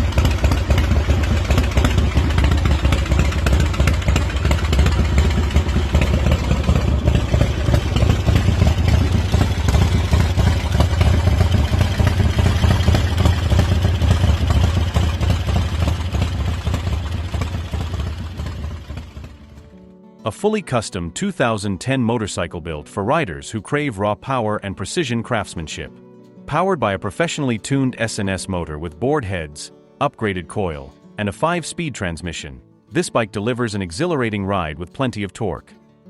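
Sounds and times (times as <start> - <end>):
motorcycle engine running: 0.0 - 19.7.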